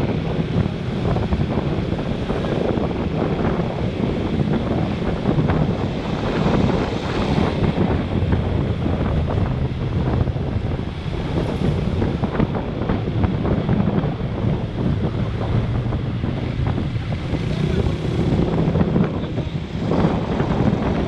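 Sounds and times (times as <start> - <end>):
passing traffic: 0.0 - 21.0
wind rush over microphone: 0.0 - 21.0.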